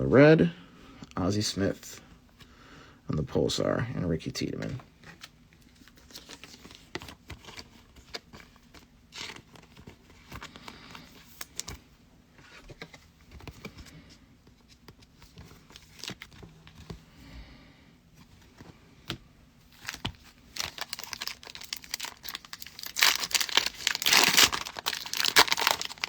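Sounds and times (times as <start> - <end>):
cards being handled: 18.3 - 26.0
wrappers crinkling and tearing: 19.8 - 26.0.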